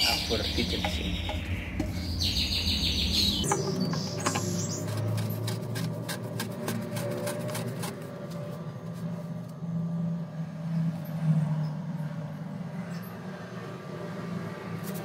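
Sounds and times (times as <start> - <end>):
birds chirping: 0.0 - 5.4.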